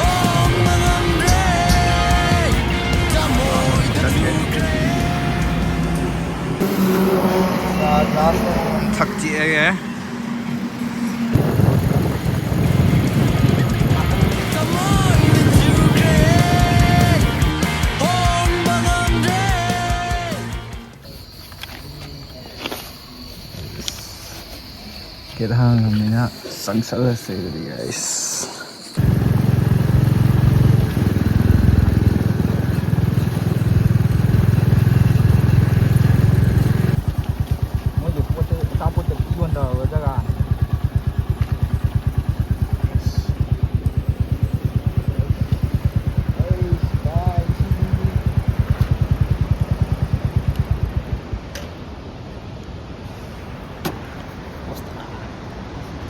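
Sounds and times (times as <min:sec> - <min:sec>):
motorcycle engine running: 0:00.0 - 0:21.0, 0:29.0 - 0:51.9.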